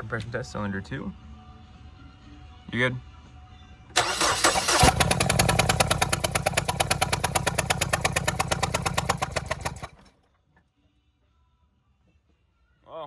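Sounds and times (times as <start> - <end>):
engine cranking on starter: 4.0 - 10.1.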